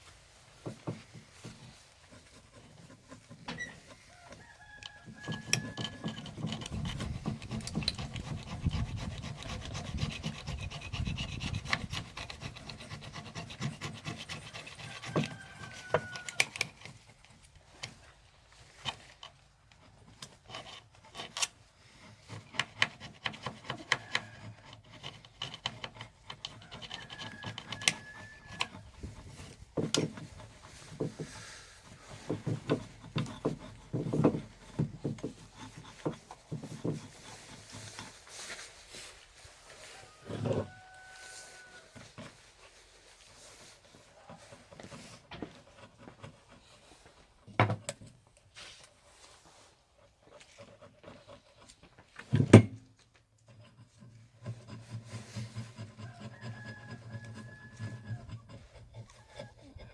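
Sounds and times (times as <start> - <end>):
hand scraping and rubbing: 0.0 - 47.4, 48.2 - 52.3, 52.9 - 59.9
short squeaks: 3.4 - 4.2.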